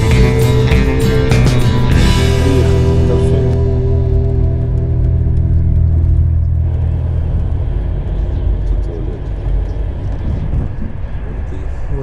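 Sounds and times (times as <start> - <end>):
background music: 0.0 - 8.0
moving train rumble: 0.0 - 12.0.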